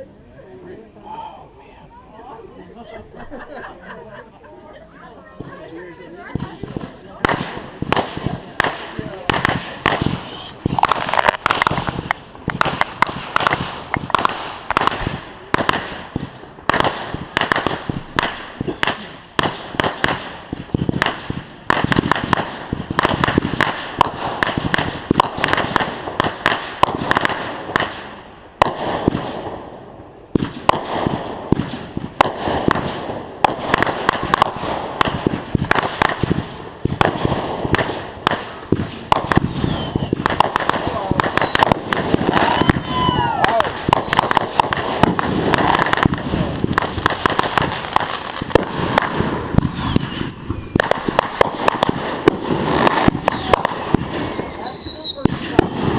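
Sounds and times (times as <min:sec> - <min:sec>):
fireworks bangs and cracks: 0:05.3 - 0:55.9
firework whistle falling in pitch: 0:42.4 - 0:44.0.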